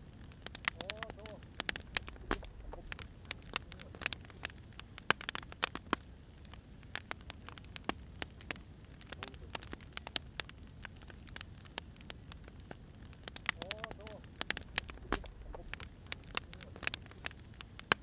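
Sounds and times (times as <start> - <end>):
firewood crackling and popping: 0.0 - 18.0
low rush of flames: 0.0 - 18.0.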